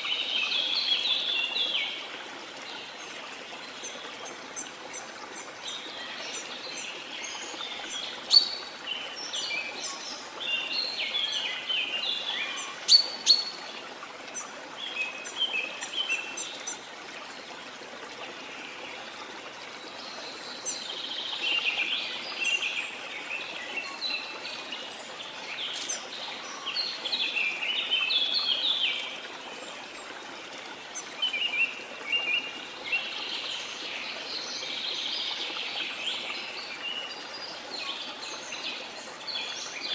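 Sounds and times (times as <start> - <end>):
running water hiss: 0.0 - 39.9
birds chirping and trilling: 3.8 - 13.6, 20.0 - 29.1.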